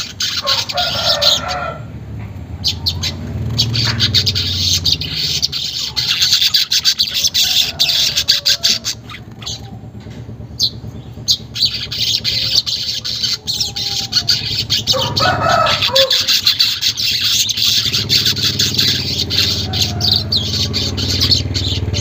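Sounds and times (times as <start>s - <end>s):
weaver birds chattering: 0.0s - 22.0s.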